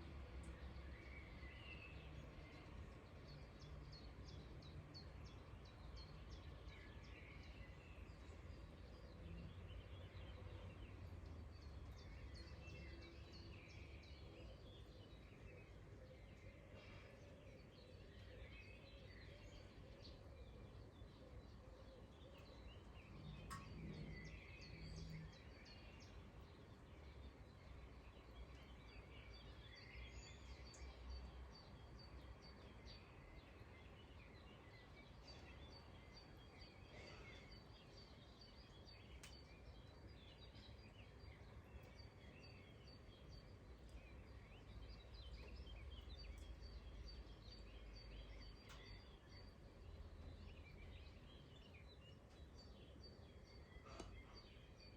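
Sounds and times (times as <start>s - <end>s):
faint clicks: 23.3s - 24.3s, 39.1s - 39.6s.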